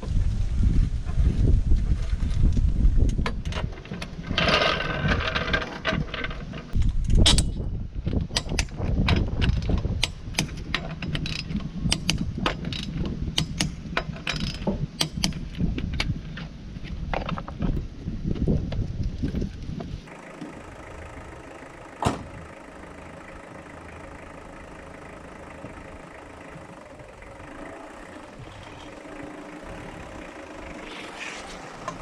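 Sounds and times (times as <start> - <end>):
ratchet wrench clicking: 9.4 - 15.4.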